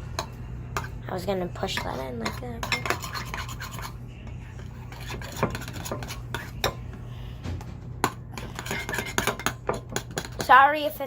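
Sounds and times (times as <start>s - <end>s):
utensil stirring slime in bowl: 0.0s - 7.0s, 8.0s - 10.6s
utensil clinking against bowl: 0.1s - 1.0s, 1.6s - 4.0s, 4.6s - 7.0s, 8.0s - 10.6s.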